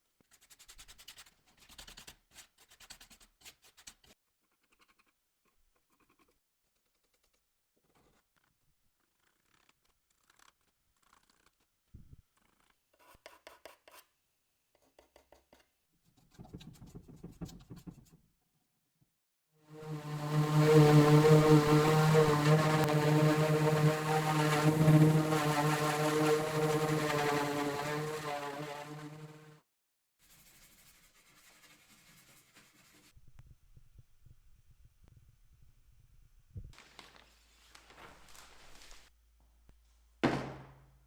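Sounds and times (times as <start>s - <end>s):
faint scratching strokes: 19.8s - 29.6s.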